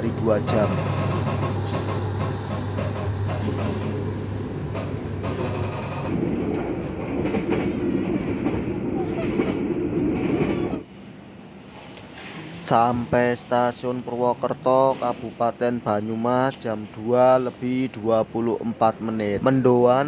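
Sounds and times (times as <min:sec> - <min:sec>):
low drone: 0:00.0 - 0:09.0
train rumble and rail noise: 0:00.0 - 0:20.0.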